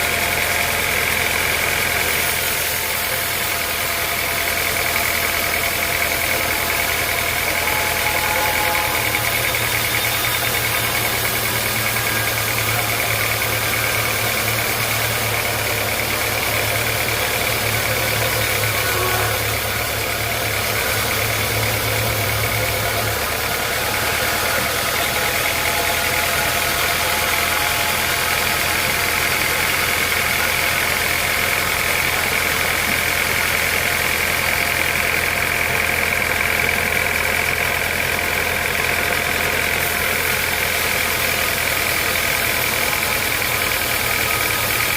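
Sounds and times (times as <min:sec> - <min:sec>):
sawmill machinery drone: 0:00.0 - 0:44.9
high even whine: 0:02.0 - 0:34.8.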